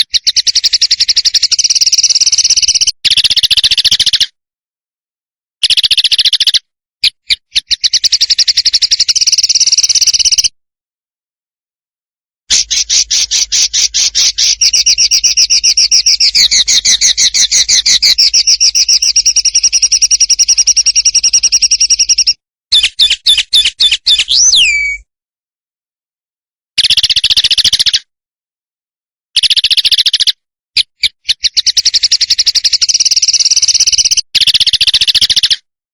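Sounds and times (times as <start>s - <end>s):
songbird trilling: 5.6s - 10.5s, 12.5s - 25.0s, 29.4s - 35.6s
bird notes with downward slur: 24.2s - 25.0s.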